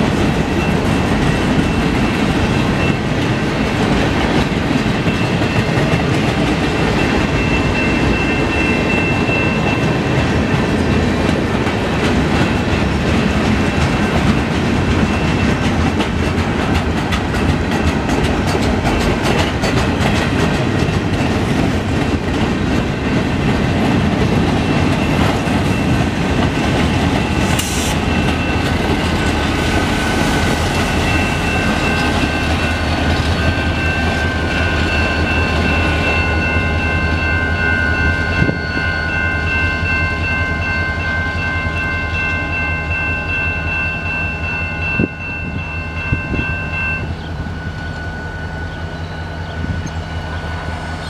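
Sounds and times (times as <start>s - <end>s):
diesel locomotive rumble: 0.0s - 38.6s
steady high ringing tones: 6.7s - 10.9s, 24.9s - 51.0s
wheels clicking over rail joints: 10.2s - 29.9s.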